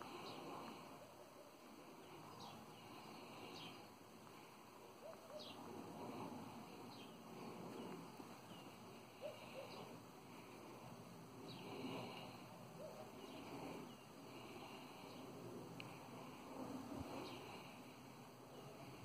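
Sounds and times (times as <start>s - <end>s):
faint outdoor background: 0.0s - 19.0s
small bird chirping: 2.0s - 3.9s, 5.0s - 5.7s.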